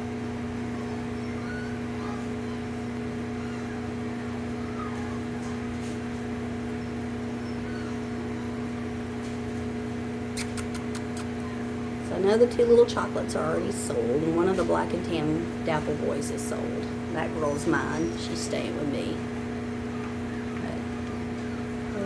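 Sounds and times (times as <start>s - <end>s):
mechanical hum: 0.0s - 22.0s
puppies squeaking: 0.5s - 9.4s, 10.3s - 22.0s
sharp clicks: 10.4s - 11.4s.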